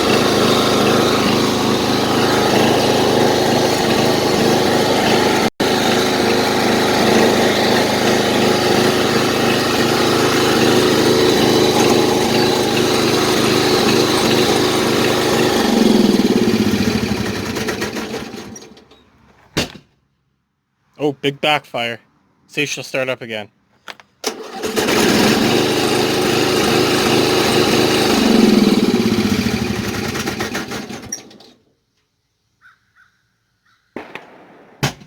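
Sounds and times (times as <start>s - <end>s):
lawnmower engine running: 0.0s - 18.9s, 24.2s - 31.6s
engine backfire bang: 34.0s - 35.0s.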